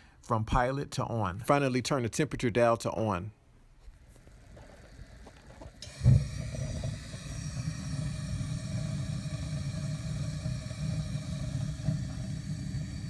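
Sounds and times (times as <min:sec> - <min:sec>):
gas burner rumbling: 0:04.0 - 0:13.0
gas burner igniting thump: 0:04.7 - 0:13.0.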